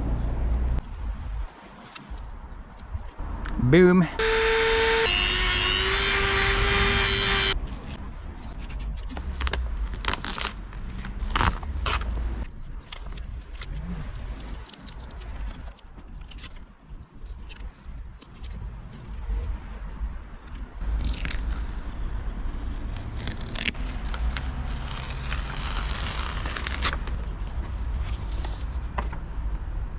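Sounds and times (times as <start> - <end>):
electric power tool whining: 4.2 - 7.6.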